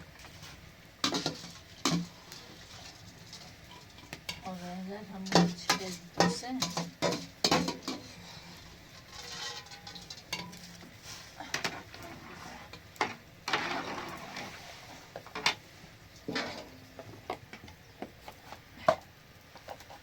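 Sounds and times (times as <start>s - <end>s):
utensils clinking against cookware: 1.0s - 2.1s, 5.2s - 8.2s, 9.0s - 10.8s
scraping sound: 13.5s - 15.1s.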